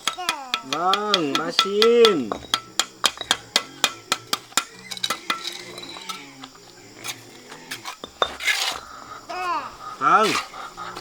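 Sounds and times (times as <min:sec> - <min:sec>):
metal tool clinking against brick: 0:00.0 - 0:06.6.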